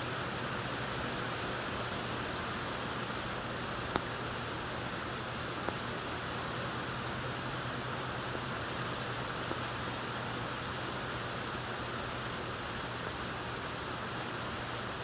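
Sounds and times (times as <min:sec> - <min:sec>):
low steady hum: 0:00.0 - 0:15.0
steady rain hiss: 0:00.0 - 0:15.0
faint raindrop ticks: 0:03.8 - 0:04.2, 0:05.4 - 0:07.3.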